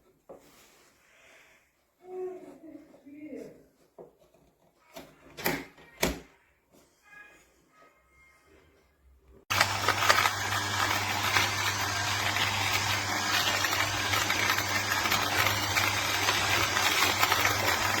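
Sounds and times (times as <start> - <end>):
coffee grinder motor humming: 9.5 - 18.0.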